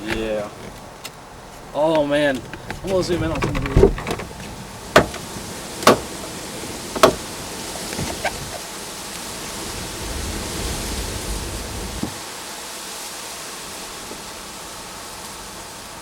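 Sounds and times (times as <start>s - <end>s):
wind: 0.0s - 16.0s
rain: 3.3s - 16.0s.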